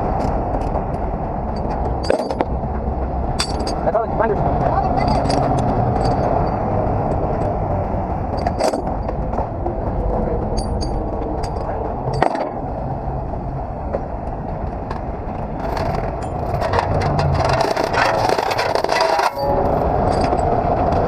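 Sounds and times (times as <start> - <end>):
sharp clicks and scrapes: 14.6 - 19.5.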